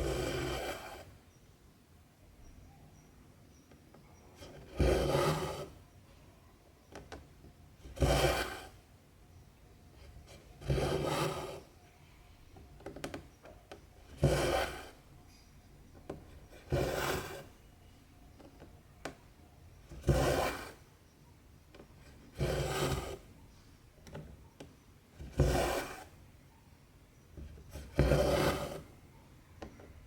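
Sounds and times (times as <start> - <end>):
thread rasping through fabric: 14.1 - 15.0, 16.2 - 17.5, 22.2 - 23.2, 27.6 - 28.9.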